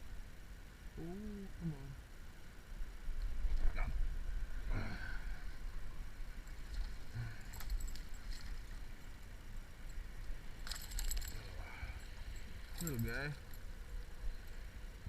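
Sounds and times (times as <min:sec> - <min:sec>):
light rattling: 0:06.4 - 0:14.7.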